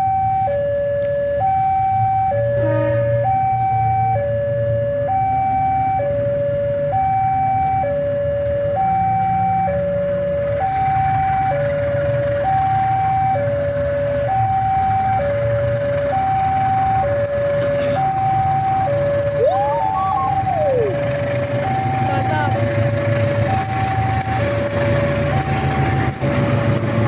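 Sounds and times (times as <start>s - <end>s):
low engine rumble: 0.0s - 27.0s
two-tone crossing alarm: 0.0s - 27.0s.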